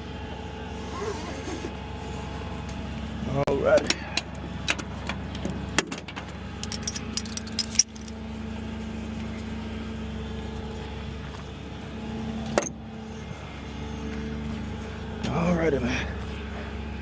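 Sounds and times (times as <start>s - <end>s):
vehicle engine idling: 0.0s - 17.0s
metal clinking and rattling: 6.0s - 8.2s.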